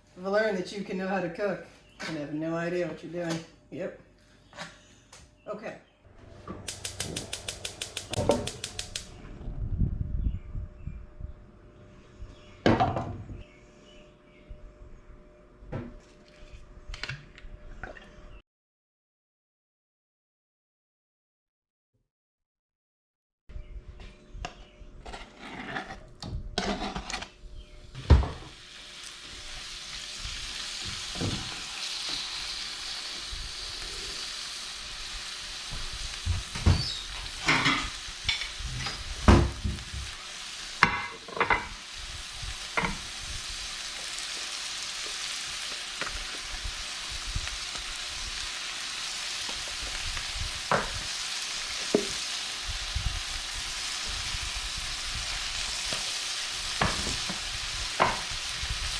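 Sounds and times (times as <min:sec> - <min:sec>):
utensil scraping a pan: 0:25.0 - 0:27.4
chicken sizzling in a pan: 0:28.0 - 0:58.9.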